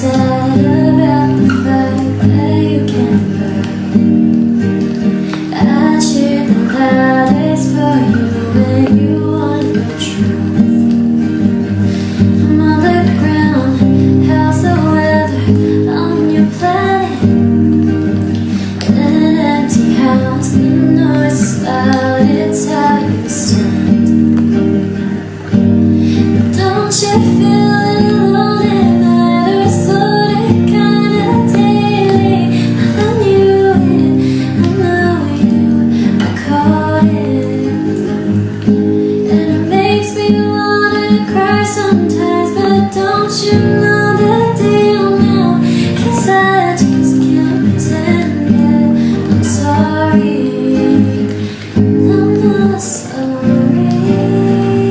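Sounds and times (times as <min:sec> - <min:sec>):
acoustic guitar: 0:00.0 - 0:54.9
woman singing: 0:00.0 - 0:54.9.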